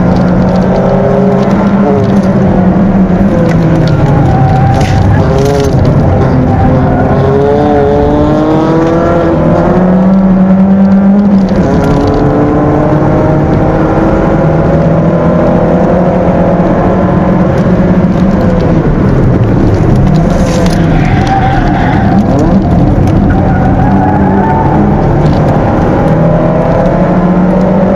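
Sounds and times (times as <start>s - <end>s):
car engine accelerating: 0.0s - 27.9s.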